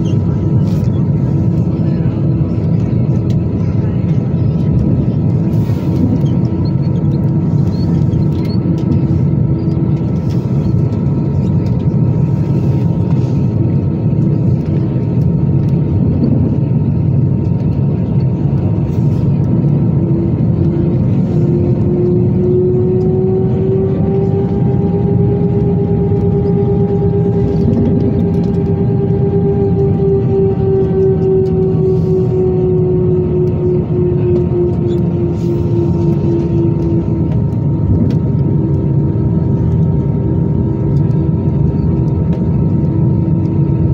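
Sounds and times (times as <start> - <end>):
jet engine cabin noise: 0.0 - 43.9
rising engine whine: 0.0 - 43.9.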